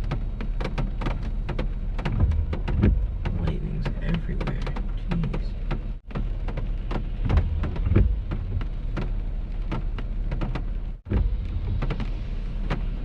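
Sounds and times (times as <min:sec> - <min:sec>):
heavy rain pelting a car: 0:00.0 - 0:13.0
thunder rumble: 0:10.8 - 0:13.0.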